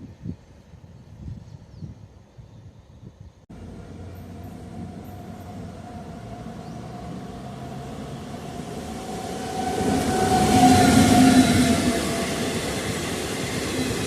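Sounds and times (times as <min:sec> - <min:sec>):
train running noise: 0:03.5 - 0:14.0.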